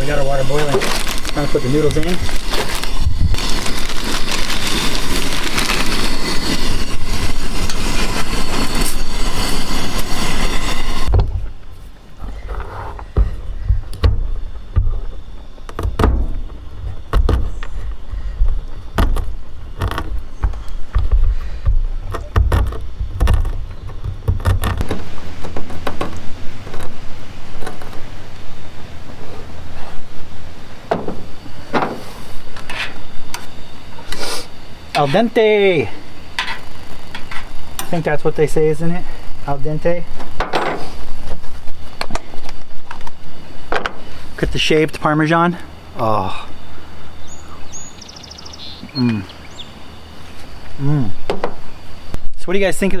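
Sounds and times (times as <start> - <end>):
gas burner hissing: 0.0 - 53.0
camp cooking gear knocks and clicks: 12.2 - 27.0, 51.2 - 51.6.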